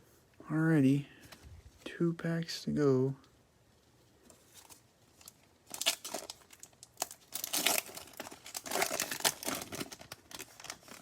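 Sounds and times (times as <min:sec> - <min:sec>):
foil wrapper crinkling and tearing: 0:04.5 - 0:11.0.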